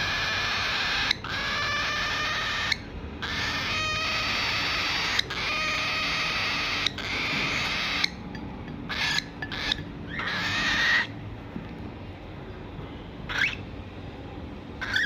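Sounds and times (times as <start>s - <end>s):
baby bird raspy begging calls: 0.0s - 8.3s, 8.9s - 11.2s, 13.3s - 13.7s, 14.8s - 15.0s.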